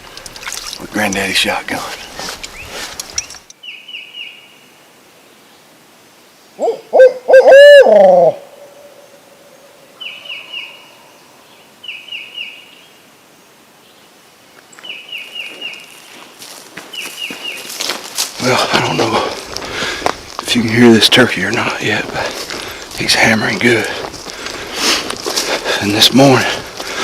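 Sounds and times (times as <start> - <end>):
owl hooting: 6.6 - 10.9.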